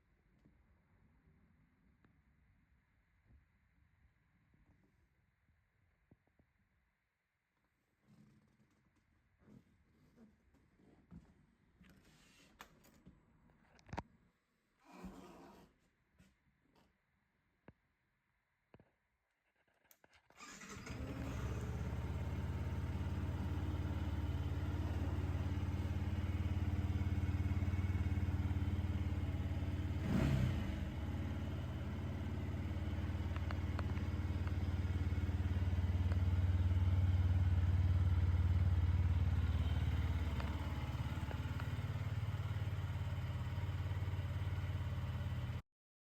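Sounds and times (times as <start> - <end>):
motorcycle engine idling: 20.6 - 45.6.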